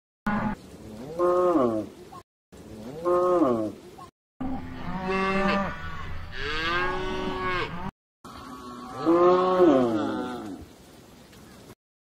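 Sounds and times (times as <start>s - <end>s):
cows mooing: 4.4s - 10.6s.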